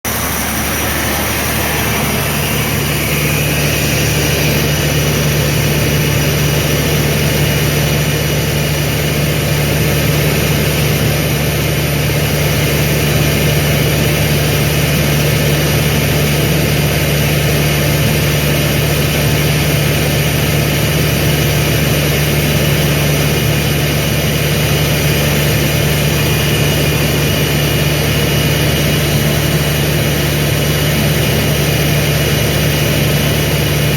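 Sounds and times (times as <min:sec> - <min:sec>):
diesel air compressor droning: 0:00.0 - 0:33.9.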